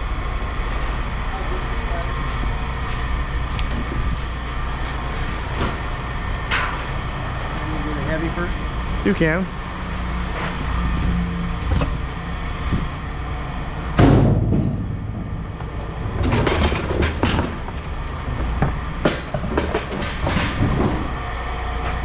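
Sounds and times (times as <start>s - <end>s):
low rumble: 10.7s - 19.0s
scrap metal clanking and banging: 14.0s - 21.1s.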